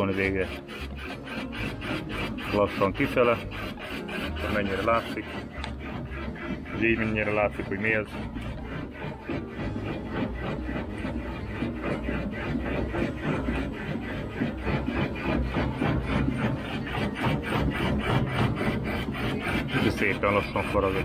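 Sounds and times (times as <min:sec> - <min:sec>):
boring bar cutting steel: 0:00.0 - 0:21.0.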